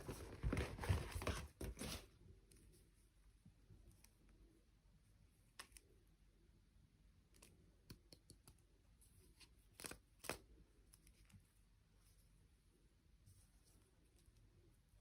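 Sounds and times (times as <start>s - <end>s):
faint sharp clicks and taps: 7.3s - 8.7s.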